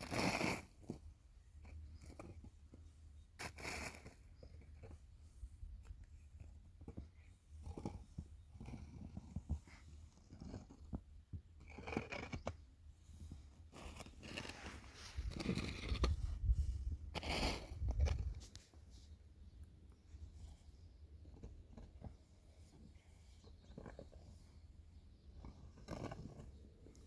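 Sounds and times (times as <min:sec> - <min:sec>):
handling clicks and scrapes: 0:05.6 - 0:19.2, 0:20.2 - 0:27.0.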